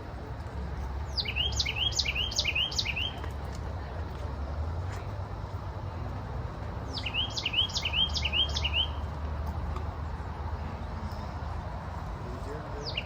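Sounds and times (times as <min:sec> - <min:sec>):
songbird singing: 0:00.8 - 0:03.4, 0:06.8 - 0:09.5, 0:12.3 - 0:13.0.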